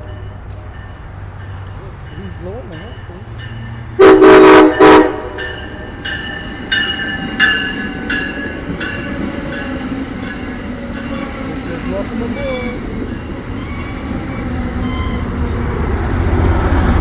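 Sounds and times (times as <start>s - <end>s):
bell ringing steadily: 0.0s - 4.0s, 4.7s - 13.5s
train rumbling past: 0.0s - 17.0s
train horn blasts: 4.0s - 5.7s, 11.0s - 15.8s.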